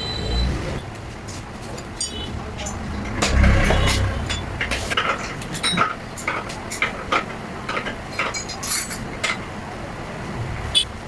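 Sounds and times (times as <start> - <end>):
metal parts and tools clinking: 1.7 - 9.5
metal scrape: 2.0 - 5.8.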